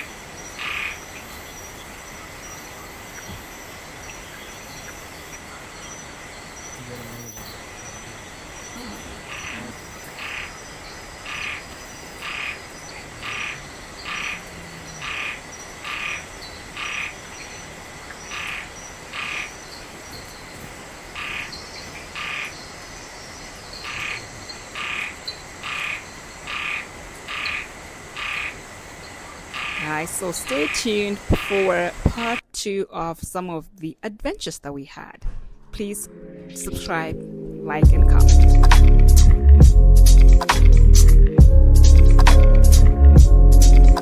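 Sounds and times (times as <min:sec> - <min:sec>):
frog calling: 0:00.0 - 0:32.4
steady high hum: 0:00.0 - 0:32.4.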